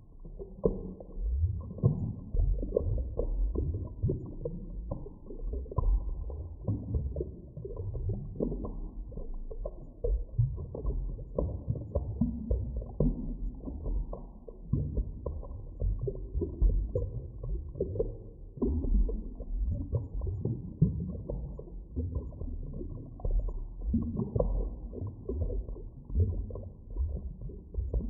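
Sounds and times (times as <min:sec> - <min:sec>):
underwater rumble: 0:00.0 - 0:28.0.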